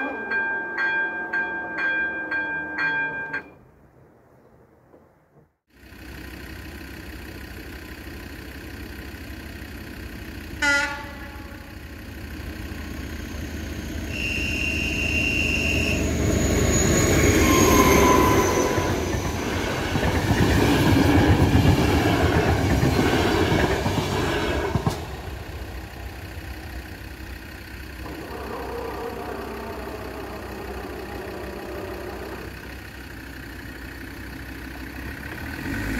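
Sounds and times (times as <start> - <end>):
train wheels rumbling: 7.6 - 35.6
train horn blast: 10.6 - 11.9, 14.1 - 16.2.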